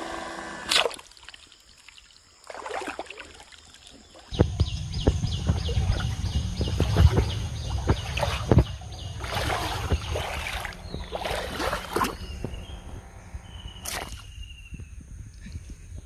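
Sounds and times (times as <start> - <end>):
water splashing and sloshing: 0.7 - 14.4
bird calling: 4.3 - 15.0.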